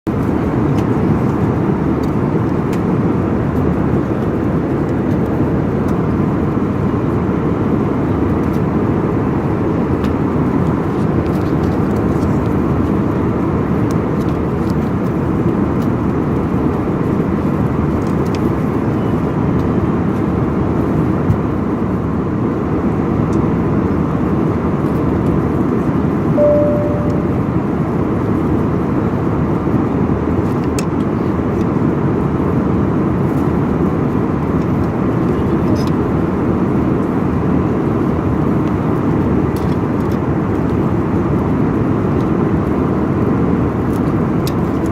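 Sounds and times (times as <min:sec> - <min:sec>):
airliner cabin roar: 0:23.6 - 0:44.9
short single tone: 0:26.4 - 0:27.6.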